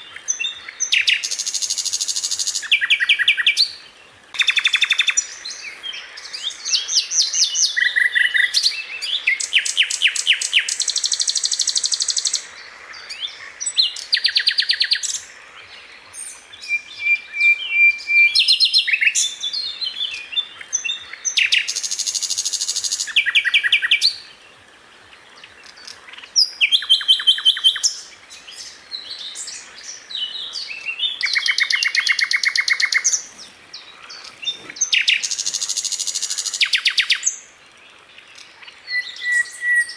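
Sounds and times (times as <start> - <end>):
bird singing trills: 25.6 - 37.5, 38.2 - 39.9.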